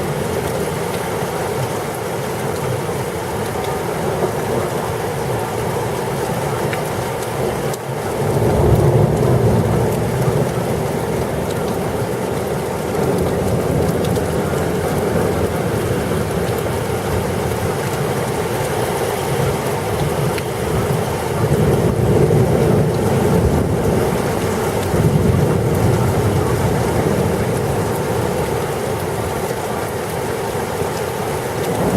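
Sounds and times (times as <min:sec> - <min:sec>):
heavy rain pouring: 0:00.0 - 0:31.9
thunder rumbling: 0:08.1 - 0:18.7, 0:19.3 - 0:30.0.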